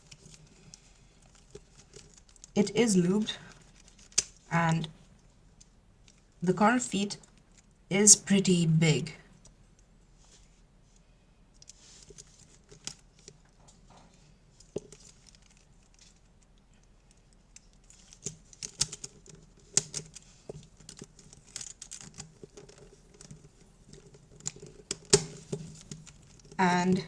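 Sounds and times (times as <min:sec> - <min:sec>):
plastic puzzle cube turning: 0:00.1 - 0:02.6, 0:03.5 - 0:04.5, 0:14.6 - 0:16.3, 0:17.6 - 0:26.6.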